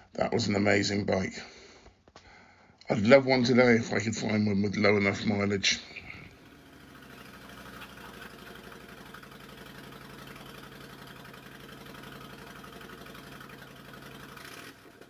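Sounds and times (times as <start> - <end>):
motorcycle engine idling: 5.3 - 15.0.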